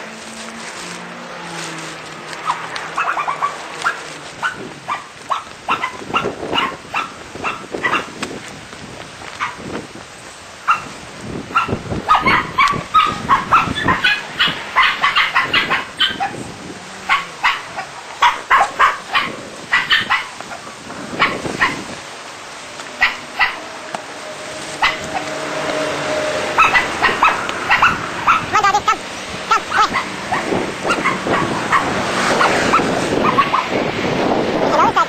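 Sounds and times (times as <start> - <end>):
dog barking and yipping: 2.4 - 8.2, 9.4 - 9.7, 10.6 - 16.4, 17.0 - 21.9, 22.9 - 23.8, 24.7 - 25.7, 26.5 - 33.8.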